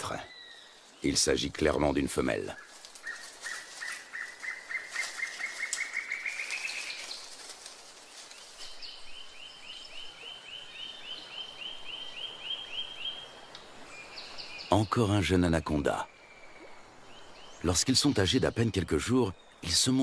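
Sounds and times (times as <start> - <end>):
bird singing trills: 2.2 - 7.3.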